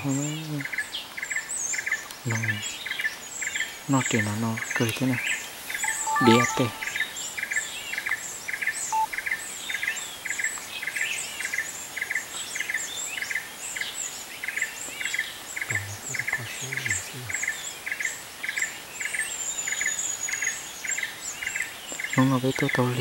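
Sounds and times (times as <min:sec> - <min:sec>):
forest birds chirping: 0:00.0 - 0:23.0
even pulsing chirp: 0:05.8 - 0:07.2.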